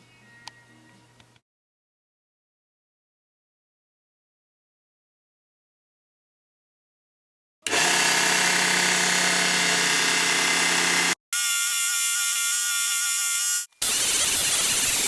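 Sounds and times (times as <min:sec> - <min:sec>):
small electric motor tool running: 0:07.7 - 0:15.0.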